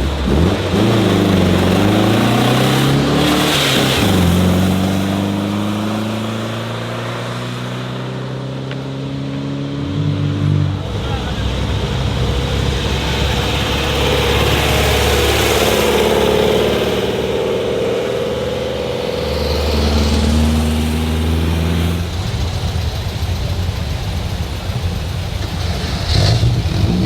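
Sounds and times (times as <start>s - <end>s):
cars driving past: 0.0s - 27.0s
low engine hum: 0.0s - 27.0s.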